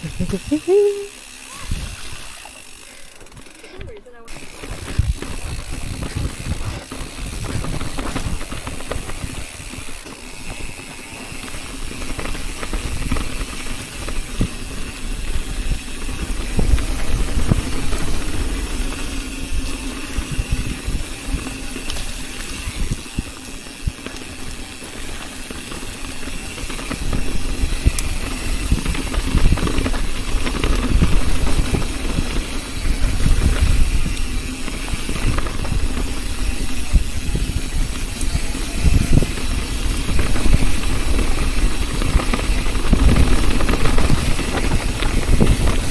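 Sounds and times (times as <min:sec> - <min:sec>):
bike rattling over rocks: 0:00.0 - 0:45.9
bike tyre noise: 0:00.0 - 0:45.9
wind on camera microphone: 0:04.6 - 0:10.0, 0:11.9 - 0:24.5, 0:26.2 - 0:45.9.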